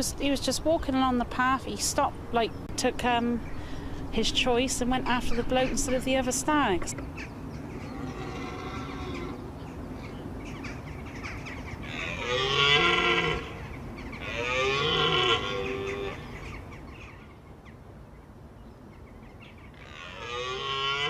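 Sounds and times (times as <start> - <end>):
deer stag bellowing: 11.8 - 13.6, 14.2 - 16.3, 19.8 - 21.0.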